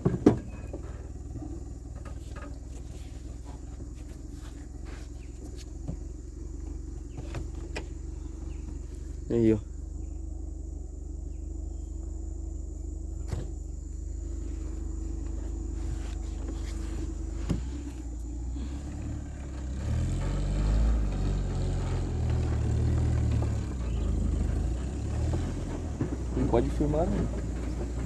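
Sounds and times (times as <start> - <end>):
car engine revving: 3.0 - 28.0.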